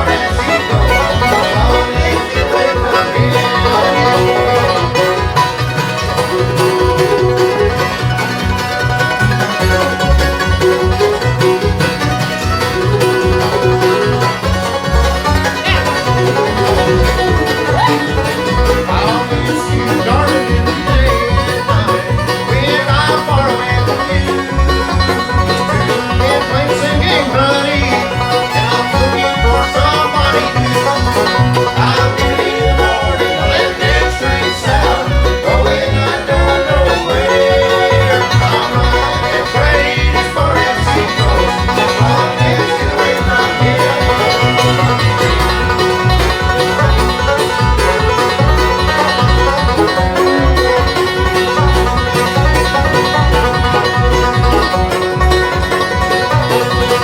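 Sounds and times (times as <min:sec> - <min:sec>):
low bass pulse: 0:00.0 - 0:56.8
banjo: 0:00.0 - 0:57.0
fiddle: 0:00.0 - 0:57.0
guitar: 0:00.0 - 0:57.0.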